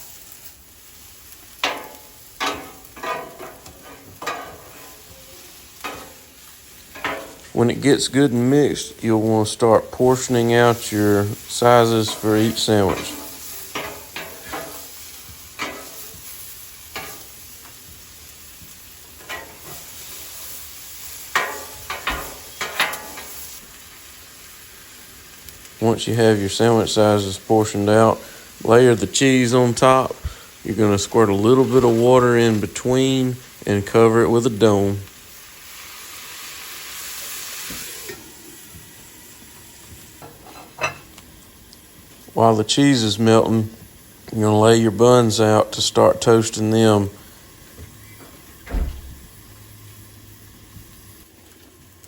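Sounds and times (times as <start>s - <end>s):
food sizzling on a griddle: 0.0s - 52.0s
metal spatula scraping griddle: 1.6s - 6.3s, 6.9s - 7.5s, 11.8s - 17.4s, 19.2s - 20.4s, 21.3s - 23.5s.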